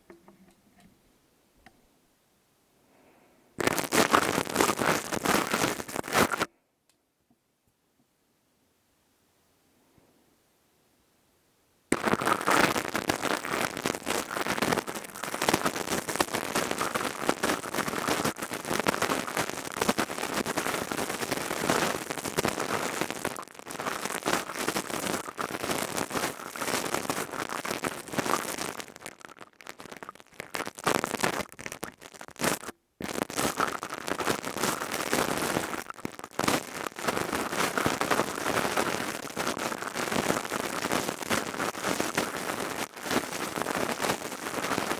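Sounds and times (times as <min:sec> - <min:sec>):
crackling and rustling: 0:03.6 - 0:06.5, 0:11.9 - 0:44.9.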